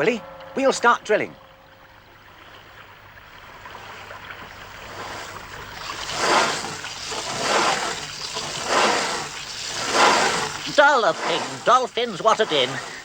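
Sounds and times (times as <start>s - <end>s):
cartoon drill boring through wall: 5.8s - 13.0s.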